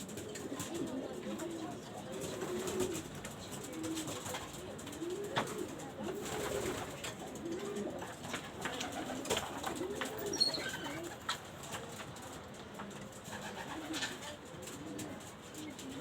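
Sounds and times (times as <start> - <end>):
pigeons cooing: 0.0 - 11.2.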